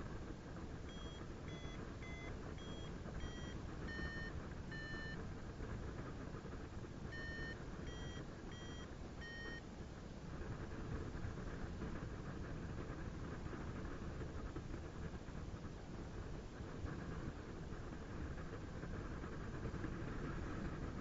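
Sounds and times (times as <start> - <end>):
variometer beeping: 0.9 - 5.2, 7.1 - 9.6.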